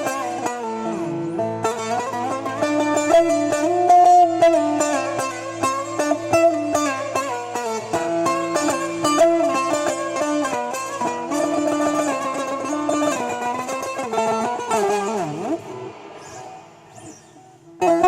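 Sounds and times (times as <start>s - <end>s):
plucked string instrument solo: 0.0s - 18.0s.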